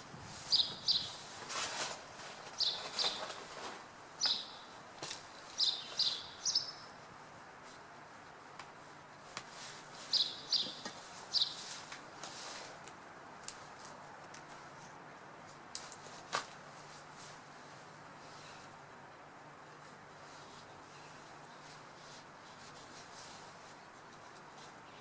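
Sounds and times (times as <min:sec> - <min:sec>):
faint background hiss: 0:00.0 - 0:25.0
small birds chirping: 0:00.5 - 0:01.3, 0:02.4 - 0:03.6, 0:04.2 - 0:07.0, 0:10.0 - 0:11.8.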